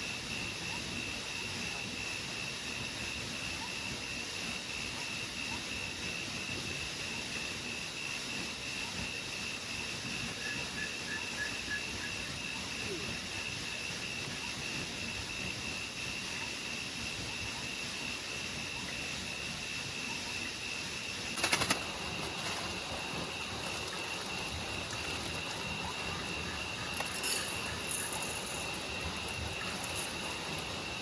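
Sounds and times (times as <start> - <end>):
steady rain falling: 21.3 - 31.0.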